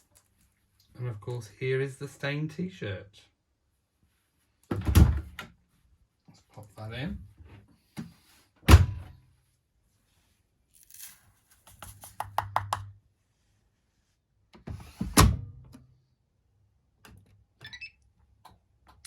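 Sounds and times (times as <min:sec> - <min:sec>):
washing machine heavy thunks: 0:04.8 - 0:05.4, 0:08.7 - 0:09.1.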